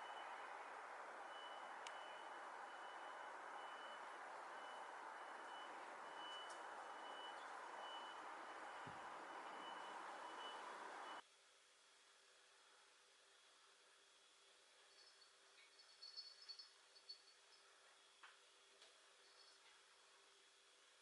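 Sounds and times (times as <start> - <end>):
faint high-pitched beeping: 0.0 - 11.2, 14.9 - 17.8, 19.2 - 19.8
steady hiss: 0.0 - 21.0.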